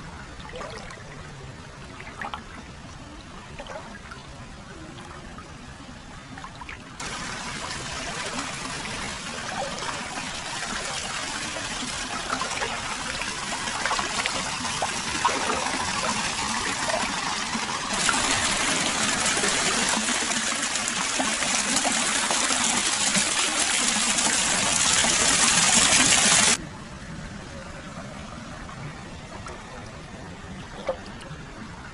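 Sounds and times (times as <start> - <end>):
water splashing into a bath: 6.5 - 26.6.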